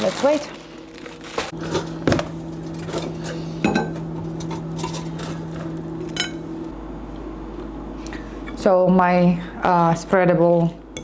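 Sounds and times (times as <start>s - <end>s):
low electrical hum: 0.0s - 11.0s
dishes and cutlery clinking: 2.7s - 6.4s.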